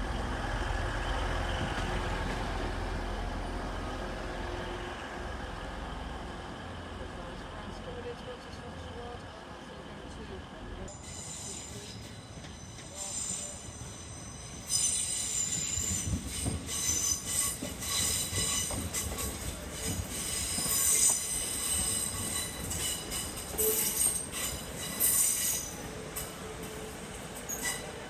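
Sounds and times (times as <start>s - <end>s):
low train rumble: 0.0s - 28.0s
train wheels squealing: 10.9s - 28.0s.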